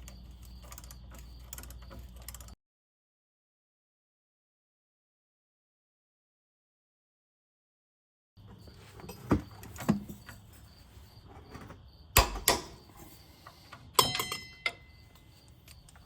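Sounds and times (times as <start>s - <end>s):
ringing metal clatter: 14.0s - 15.0s.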